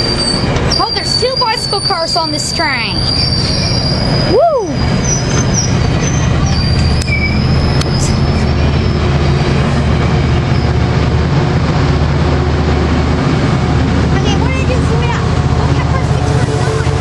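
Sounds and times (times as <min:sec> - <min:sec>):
high wheel squeal: 0:00.0 - 0:10.8
diesel locomotive rumble: 0:00.0 - 0:17.0
wheels clicking on rails: 0:00.0 - 0:17.0.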